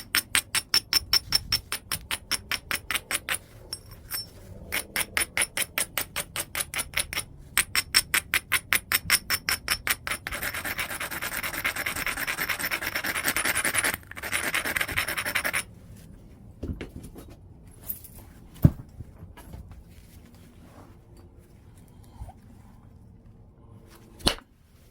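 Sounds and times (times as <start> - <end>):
stone scraping chert: 9.6 - 15.7.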